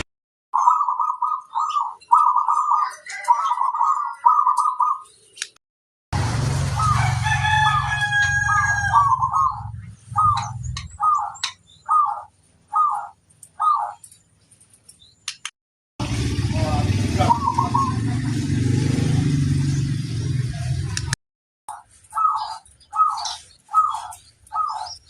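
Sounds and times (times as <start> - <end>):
dove cooing: 0.6 - 5.2, 6.8 - 14.1, 17.1 - 18.8, 21.7 - 25.0.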